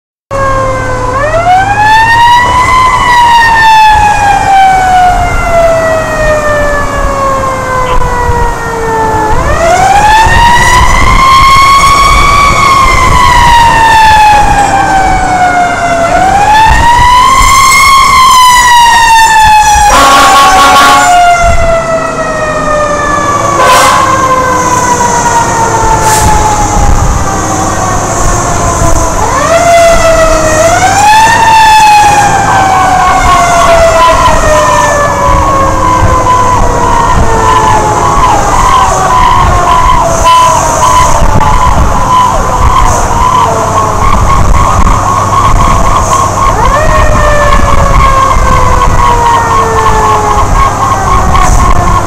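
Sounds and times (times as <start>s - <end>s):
fire engine siren wailing: 0.3s - 52.0s
truck engine rumble: 0.3s - 52.0s
harsh horn blasts: 19.2s - 21.5s, 23.5s - 24.8s.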